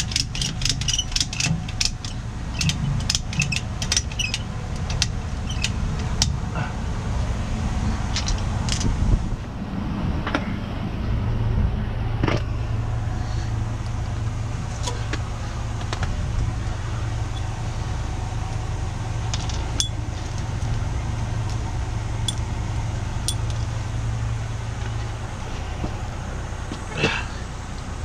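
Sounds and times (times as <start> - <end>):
sharp metallic clicks: 0.0 - 6.4
diesel truck engine idling: 0.0 - 28.0.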